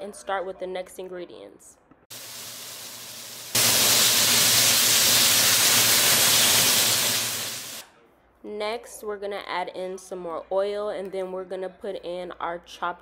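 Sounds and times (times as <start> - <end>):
chicken frying in a wok: 2.1 - 7.8.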